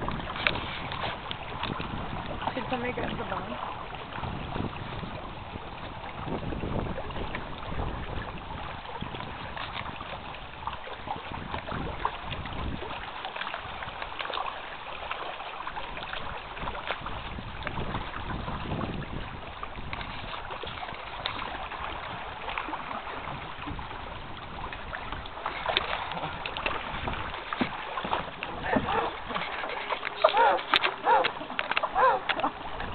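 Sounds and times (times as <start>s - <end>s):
wind buffeting microphone: 0.0s - 14.1s, 15.7s - 32.9s
water lapping: 0.0s - 32.9s.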